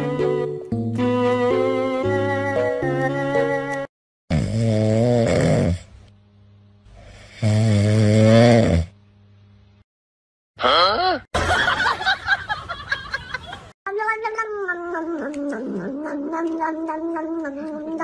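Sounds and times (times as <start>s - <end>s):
cat yowling: 13.9s - 18.0s.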